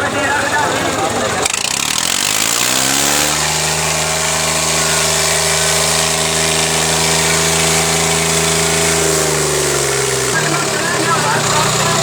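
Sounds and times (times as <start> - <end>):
tractor engines revving high: 0.0 - 12.0.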